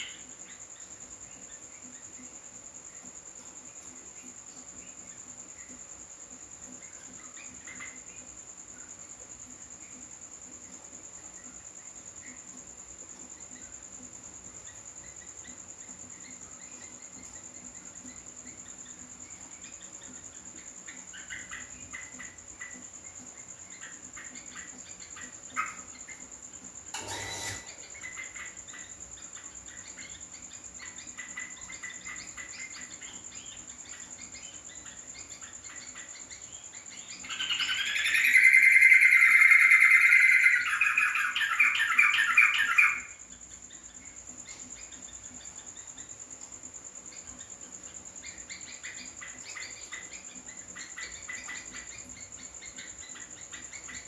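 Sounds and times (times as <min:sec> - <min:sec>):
high insect-like whine: 0:00.0 - 0:54.0
bird chirping and warbling: 0:27.0 - 0:29.0, 0:29.7 - 0:43.2.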